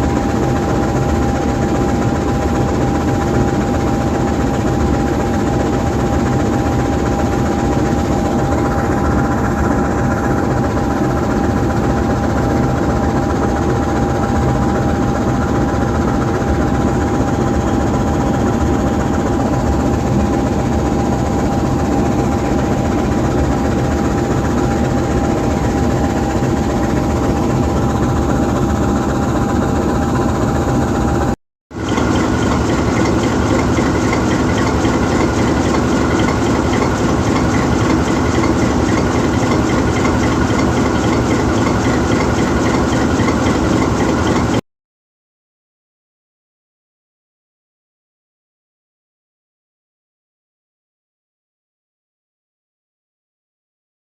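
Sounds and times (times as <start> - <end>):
steady high whine: 0.0 - 44.6
diesel locomotive idling: 17.8 - 44.6.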